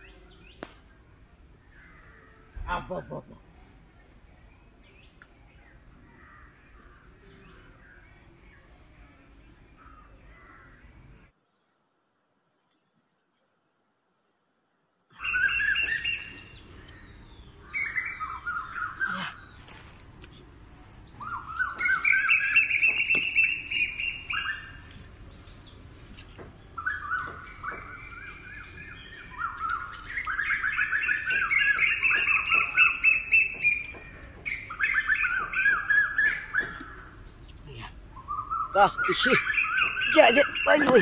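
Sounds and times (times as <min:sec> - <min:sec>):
wild birds chirping: 0:00.0 - 0:13.4, 0:14.2 - 0:41.0
leaves rustling and snapping: 0:19.5 - 0:34.6.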